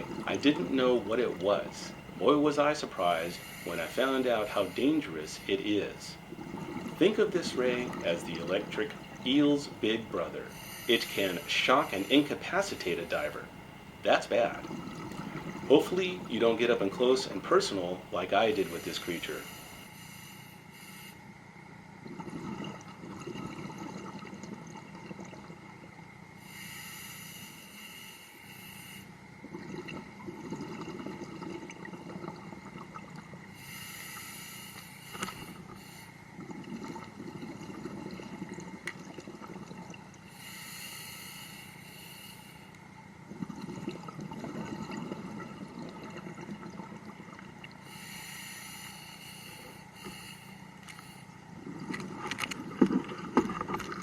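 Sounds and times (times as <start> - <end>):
exhaled bubbles rumbling: 0.0 - 19.8, 21.6 - 26.1, 29.3 - 33.6, 35.4 - 40.5, 42.9 - 48.1, 51.4 - 54.0
regulator hiss on inhale: 2.9 - 6.0, 10.1 - 13.4, 18.6 - 21.4, 26.4 - 29.2, 33.5 - 36.3, 40.3 - 42.8, 47.8 - 51.4.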